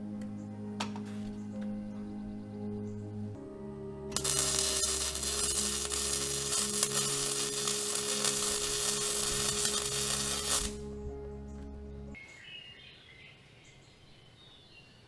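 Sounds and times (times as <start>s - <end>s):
welding arc crackling: 4.1s - 10.9s.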